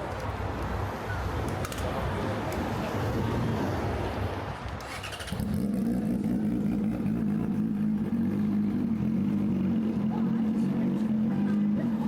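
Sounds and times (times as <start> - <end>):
traffic noise: 0.0 - 12.0
vehicle engine drone: 4.0 - 12.0.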